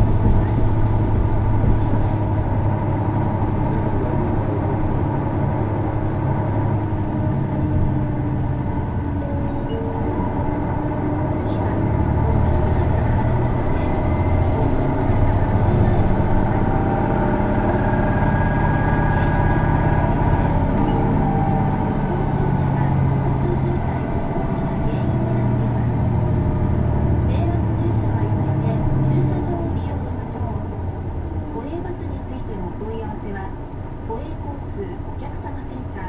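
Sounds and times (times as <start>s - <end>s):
bus diesel engine drone: 0.0s - 36.0s.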